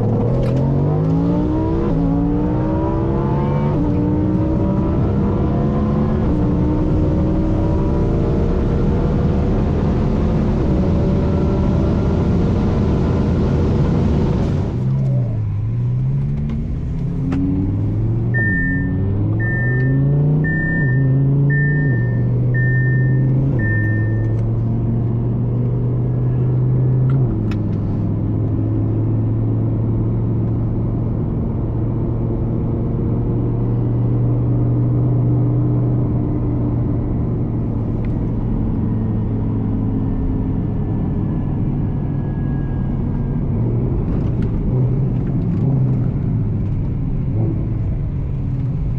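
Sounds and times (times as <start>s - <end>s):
car engine revving through gears: 0.0s - 48.9s
high electronic beeps: 18.4s - 24.4s.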